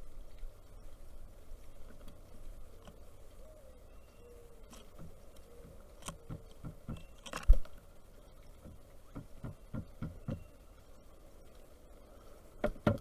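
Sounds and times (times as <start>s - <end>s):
woodpecker pecking: 8.6s - 10.6s.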